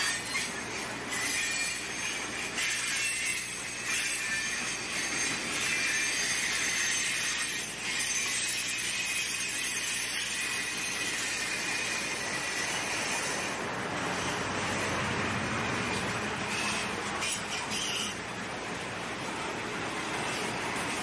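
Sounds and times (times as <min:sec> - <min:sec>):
freight train wheels on track: 0:11.2 - 0:21.0
thin high tones: 0:16.4 - 0:18.3.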